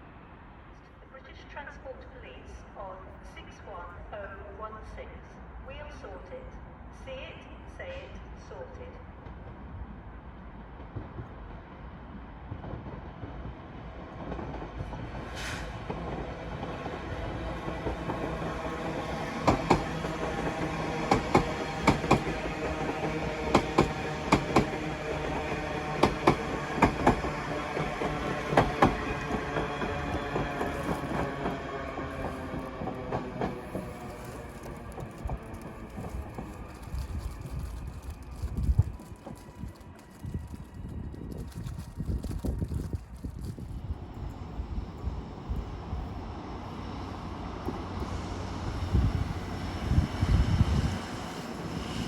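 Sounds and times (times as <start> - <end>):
train humming: 0.0 - 52.0
train wheels clicking over rail joints: 14.2 - 40.0
brief hiss: 15.3 - 15.8.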